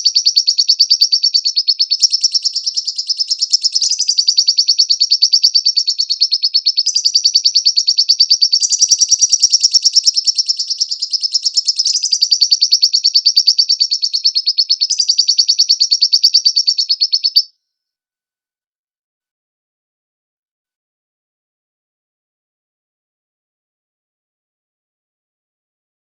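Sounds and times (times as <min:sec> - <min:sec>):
lovebird chirping: 0:00.0 - 0:17.5.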